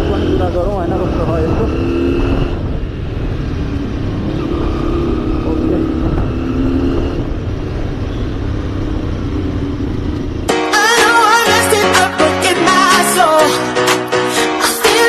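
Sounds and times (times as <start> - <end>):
wind rumble on microphone: 0.0 - 10.4
motorcycle engine hum: 0.0 - 15.0.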